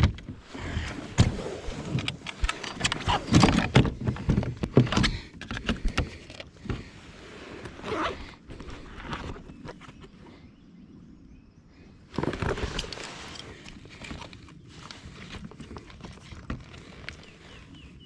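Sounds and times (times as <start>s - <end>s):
fishing tackle knocks and clicks: 1.9s - 6.8s.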